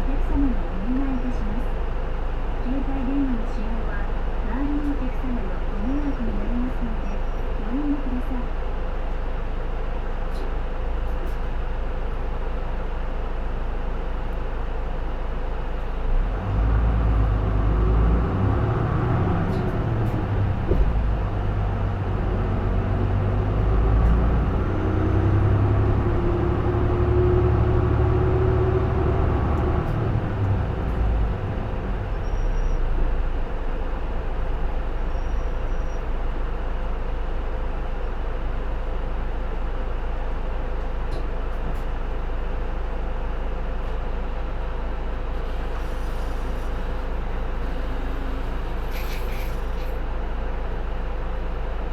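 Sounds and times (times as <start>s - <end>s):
bus engine accelerating: 0.0s - 51.9s
engine whine: 15.6s - 35.9s, 43.8s - 51.9s.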